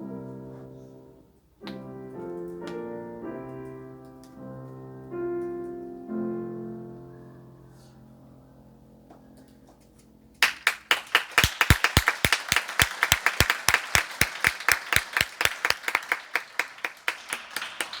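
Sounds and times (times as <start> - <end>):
audience applause: 10.4 - 18.0
close person clapping: 10.4 - 18.0.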